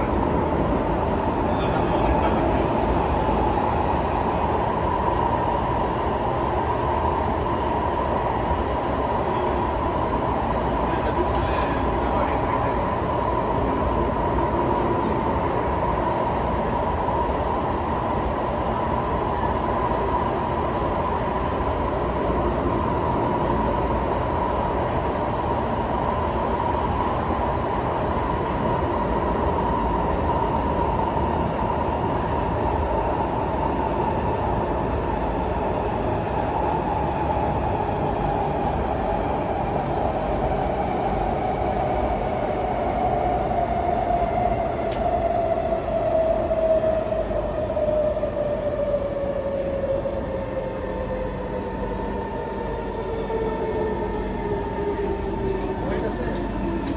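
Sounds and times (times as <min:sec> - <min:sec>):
constant train whine: 0:00.0 - 0:56.9
train carriage rumble: 0:00.0 - 0:56.9.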